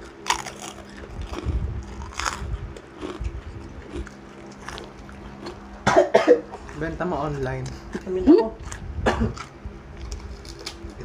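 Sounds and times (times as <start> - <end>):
chewing: 0.0 - 5.7, 6.5 - 11.0
sharp crunches: 0.2 - 6.0.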